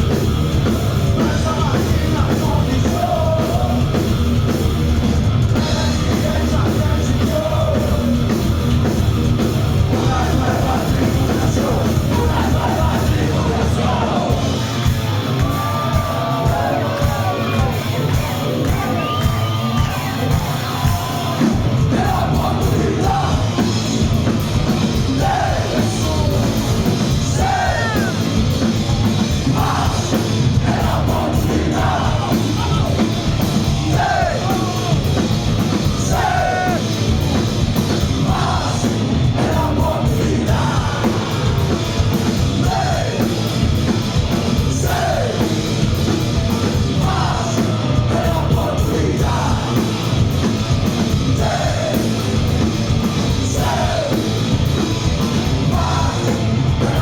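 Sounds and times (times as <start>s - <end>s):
heavy metal band playing: 0.0s - 57.0s
person shouting and singing: 27.3s - 28.3s, 33.9s - 35.2s.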